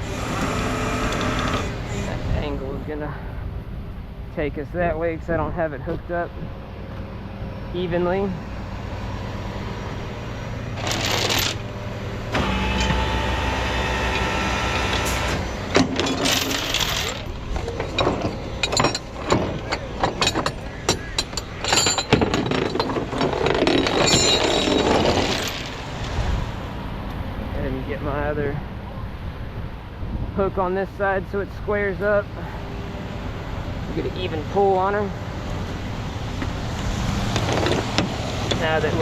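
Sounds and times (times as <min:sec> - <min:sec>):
truck engine running: 0:00.0 - 0:27.8
hydraulics whining: 0:00.0 - 0:28.4, 0:31.2 - 0:39.0
metallic clinks of tow chains: 0:16.0 - 0:25.8.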